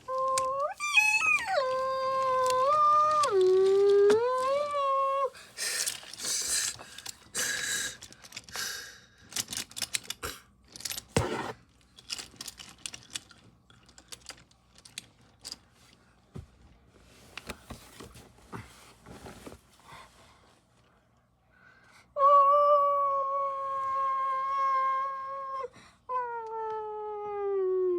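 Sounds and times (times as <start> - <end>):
rustling: 10.7 - 20.9.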